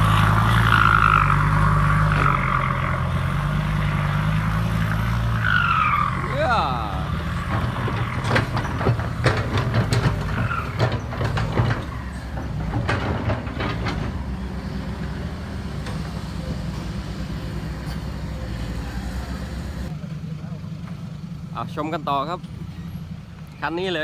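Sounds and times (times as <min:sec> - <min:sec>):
heavy diesel engines rumbling: 0:00.0 - 0:24.0
sharp metallic knocks and clanks: 0:07.0 - 0:14.7.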